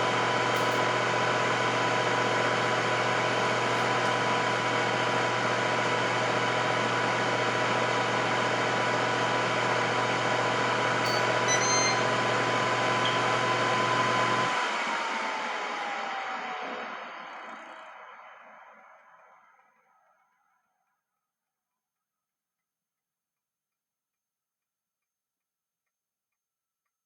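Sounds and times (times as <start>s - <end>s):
air fryer fan humming: 0.0s - 18.7s
fan winding down: 0.0s - 20.2s.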